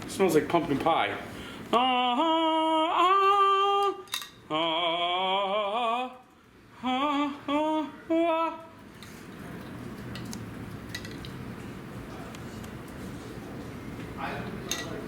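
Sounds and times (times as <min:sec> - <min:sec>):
person singing operatic notes: 0:01.7 - 0:08.8.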